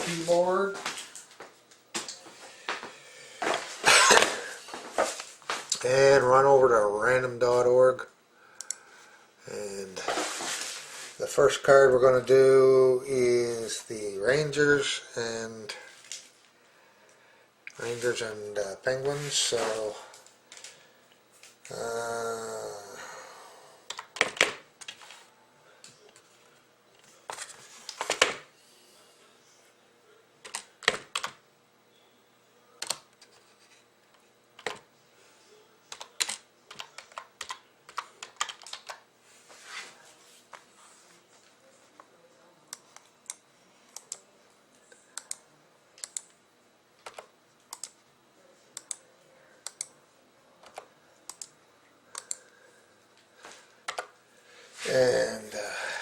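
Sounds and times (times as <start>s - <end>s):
keyboard typing clicks: 32.8s - 33.0s, 47.0s - 48.0s, 49.6s - 49.9s, 50.6s - 51.5s, 52.1s - 52.4s.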